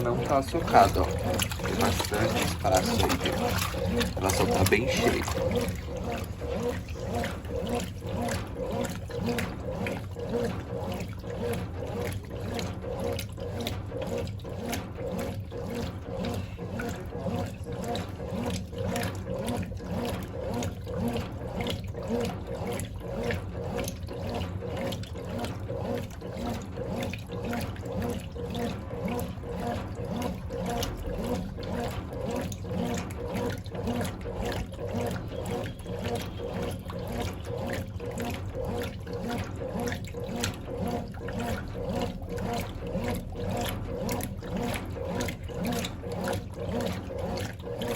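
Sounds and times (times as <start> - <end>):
washing machine sloshing water: 0.0 - 47.9.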